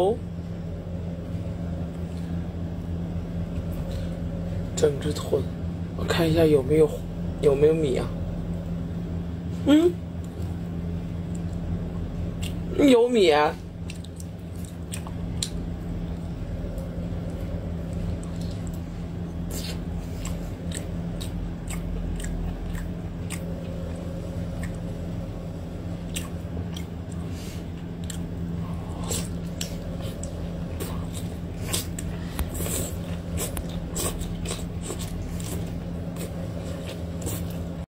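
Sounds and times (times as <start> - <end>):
low hum: 0.0 - 37.9
wet chewing clicks and squelches: 13.8 - 25.0, 26.0 - 37.8.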